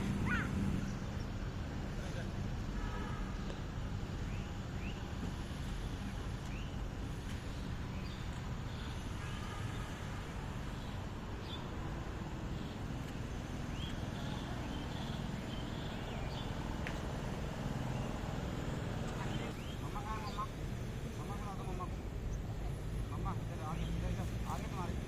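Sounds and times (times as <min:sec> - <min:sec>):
birds chirping: 0:00.0 - 0:02.3, 0:10.6 - 0:25.0
low background rumble: 0:00.0 - 0:03.2.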